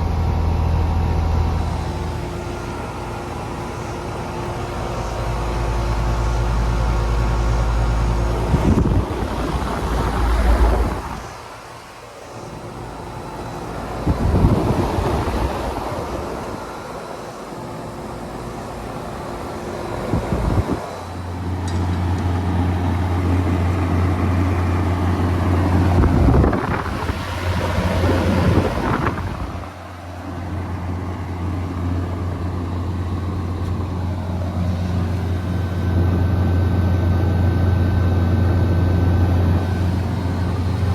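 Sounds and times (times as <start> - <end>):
air conditioner compressor hum: 0.0 - 40.9
wind gusts on microphone: 8.1 - 11.5, 13.9 - 16.7, 19.8 - 21.0, 25.1 - 29.8.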